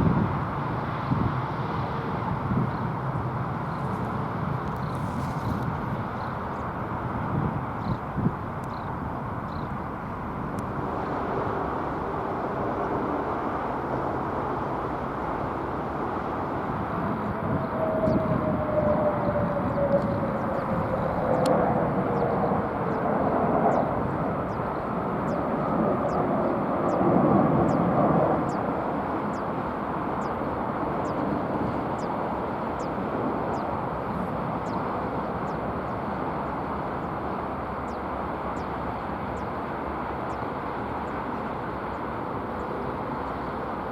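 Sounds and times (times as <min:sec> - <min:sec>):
jet aircraft passing: 0:00.0 - 0:43.9.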